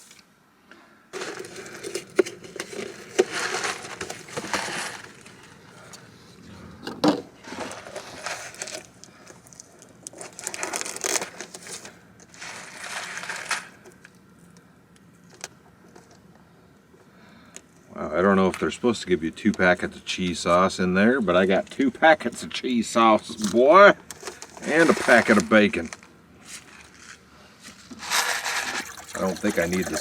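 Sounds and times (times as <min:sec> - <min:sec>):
food packaging rustling and crinkling: 0:01.2 - 0:14.5, 0:21.5 - 0:30.0.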